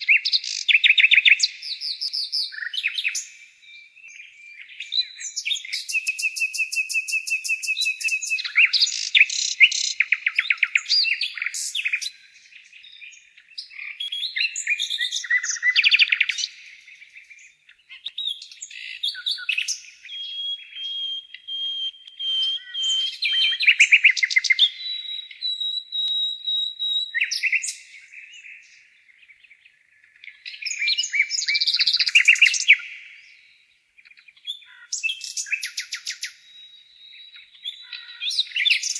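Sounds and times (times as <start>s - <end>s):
nightingale singing: 0.0s - 38.9s.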